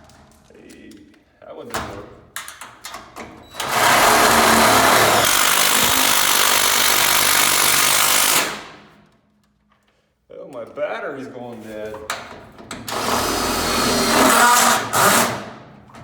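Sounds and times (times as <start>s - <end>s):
cordless drill driving screw into steel: 3.5s - 8.8s, 12.9s - 15.5s.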